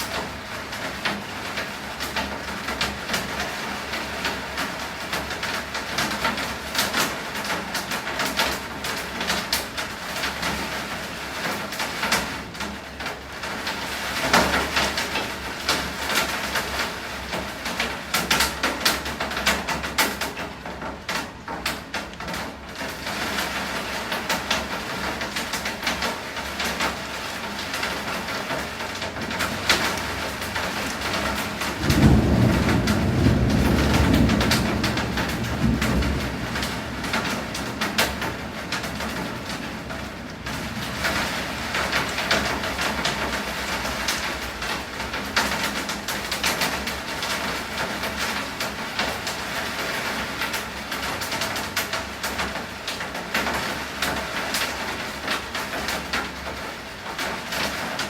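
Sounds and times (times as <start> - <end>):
heavy rain: 0.0 - 58.0
thunder rumble: 28.5 - 48.2.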